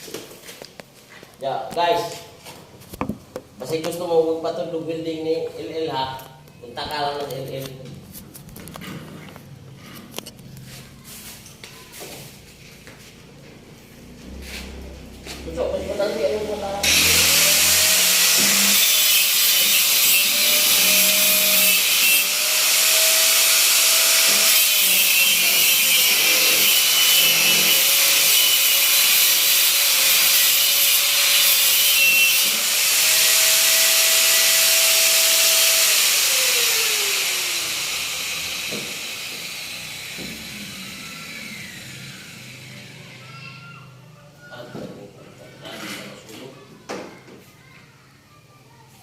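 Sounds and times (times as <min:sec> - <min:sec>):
power tool motor running: 0:16.8 - 0:43.2.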